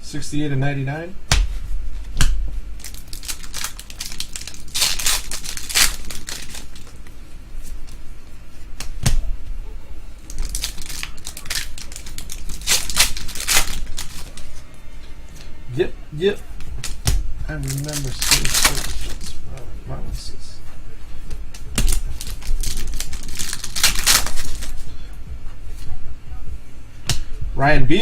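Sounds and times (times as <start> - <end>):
card pack wrappers crinkling: 2.8 - 7.1, 10.2 - 14.6, 16.8 - 19.4, 21.5 - 24.8.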